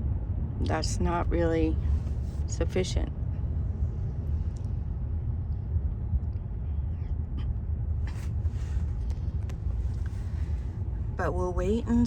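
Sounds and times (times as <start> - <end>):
car cabin road rumble: 0.6 - 4.9, 7.2 - 12.0.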